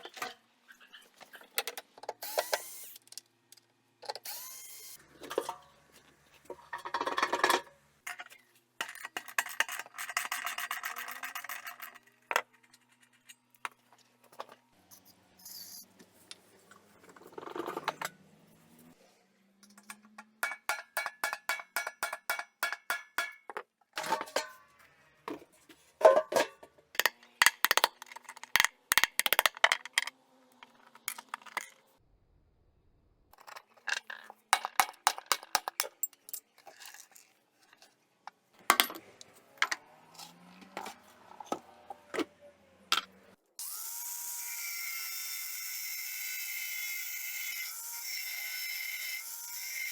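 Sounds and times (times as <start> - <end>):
hammer tapping on metal: 19.8 - 23.5.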